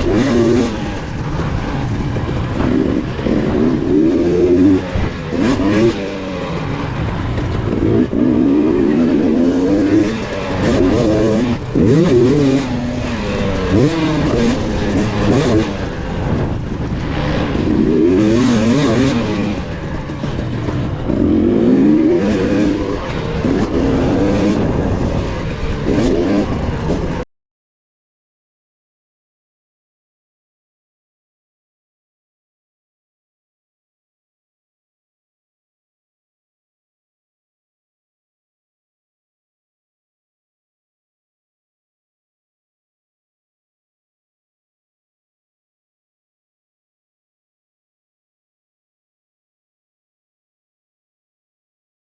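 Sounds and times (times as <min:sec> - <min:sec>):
dirt bike engine revving: 0:00.0 - 0:27.2.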